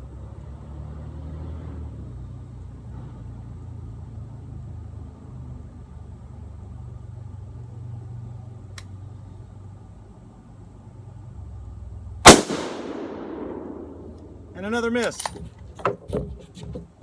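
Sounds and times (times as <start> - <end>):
low mechanical rumble: 6.1 - 17.0.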